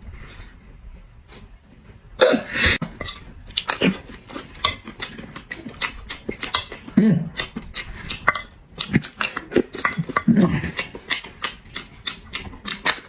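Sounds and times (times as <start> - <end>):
person chewing with wet smacking: 2.8 - 13.0.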